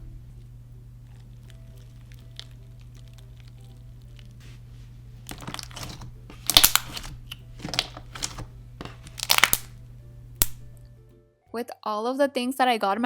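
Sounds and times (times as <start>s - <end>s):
slime crackling and squishing: 1.0s - 4.6s, 5.2s - 9.7s.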